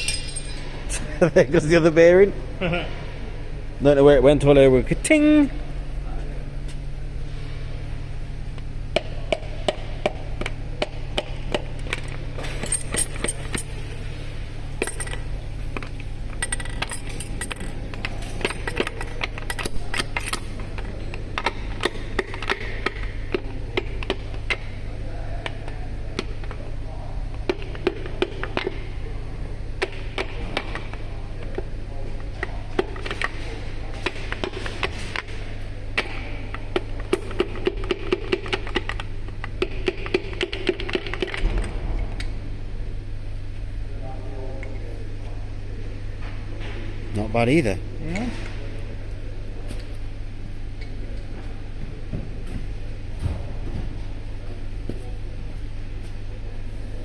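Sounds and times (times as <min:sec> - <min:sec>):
metal tools clinking: 0:00.0 - 0:01.8, 0:12.4 - 0:15.4, 0:16.3 - 0:21.0
steady low hum: 0:00.0 - 0:10.8, 0:11.5 - 0:22.3.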